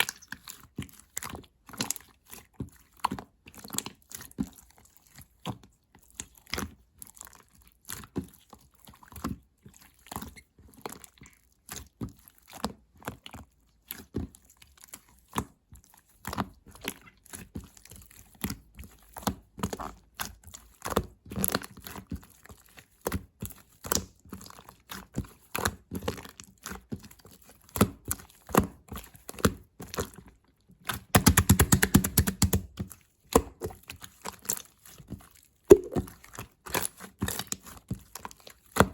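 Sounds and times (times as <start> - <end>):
rapid crackling clicks: 31.2 - 32.6
slime clicking and popping: 31.2 - 32.8, 35.7 - 36.1.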